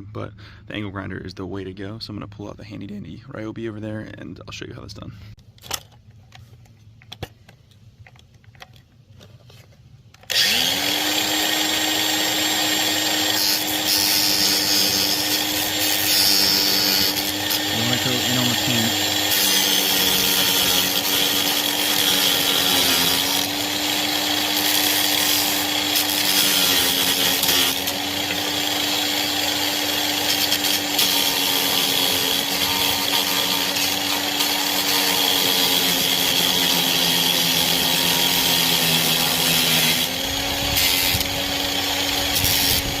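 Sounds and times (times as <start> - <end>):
angle grinder grinding wood: 10.2 - 43.0.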